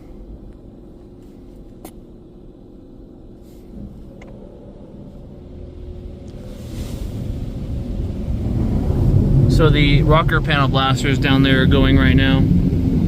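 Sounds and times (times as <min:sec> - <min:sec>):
car wash equipment rumble: 0:00.0 - 0:13.0.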